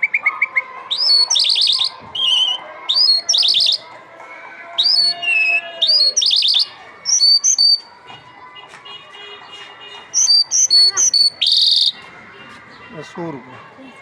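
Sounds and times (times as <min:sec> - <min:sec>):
lark singing: 0:00.0 - 0:03.9, 0:04.8 - 0:07.9, 0:10.2 - 0:12.0.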